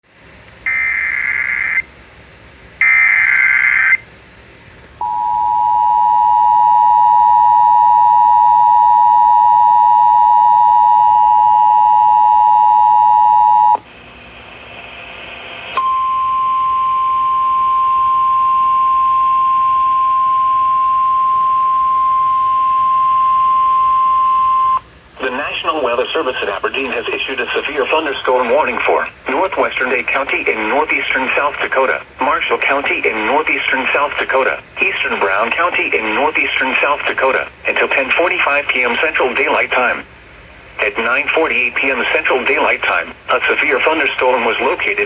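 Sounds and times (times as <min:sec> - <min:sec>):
buzzy digital header bursts: 0:00.7 - 0:01.8
steady warning tone: 0:00.7 - 0:01.9, 0:02.8 - 0:04.1, 0:05.0 - 0:13.8, 0:15.7 - 0:28.8
two-tone attention signal: 0:05.0 - 0:13.8.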